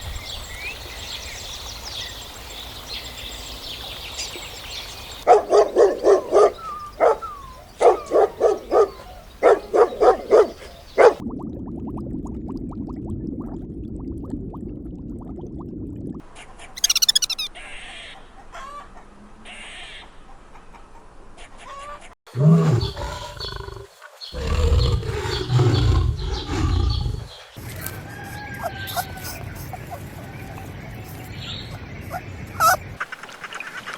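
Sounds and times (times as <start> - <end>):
high bird chirping: 16.8 - 17.5, 25.3 - 33.0
quick repeated animal calls: 16.8 - 17.8, 32.1 - 33.9
deep loud animal calls: 22.3 - 33.0.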